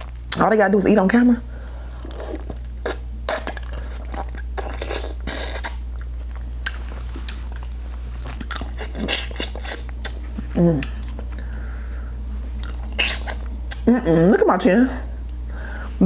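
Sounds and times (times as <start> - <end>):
low electrical hum: 0.0 - 16.0
biting and chewing seafood: 1.8 - 11.7, 12.6 - 13.8
wet mouth noises: 1.9 - 11.7, 12.6 - 14.4.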